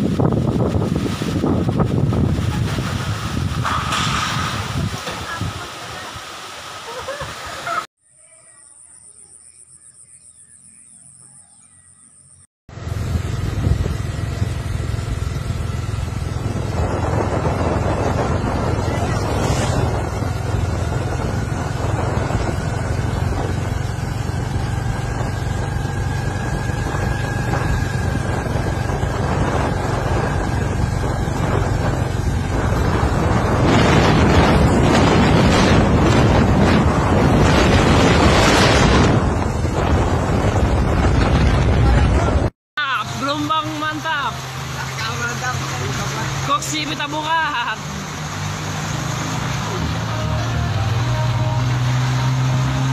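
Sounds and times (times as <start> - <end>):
storm wind buffeting microphone: 0.0 - 6.4, 12.8 - 42.5
rough surf: 0.0 - 7.9, 16.5 - 23.5, 24.1 - 42.5.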